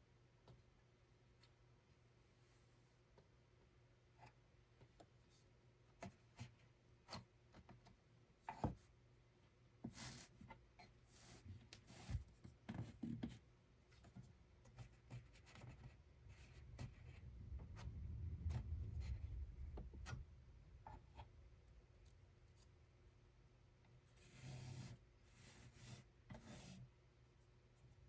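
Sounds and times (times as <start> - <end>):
low rumble: 16.0 - 22.9.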